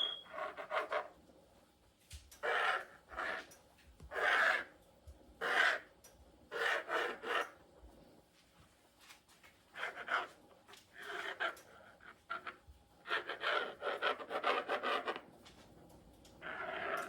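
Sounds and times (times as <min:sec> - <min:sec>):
blade scraping through dough: 0:00.0 - 0:01.2, 0:02.4 - 0:04.8, 0:05.4 - 0:07.6, 0:09.7 - 0:15.3, 0:16.4 - 0:17.0.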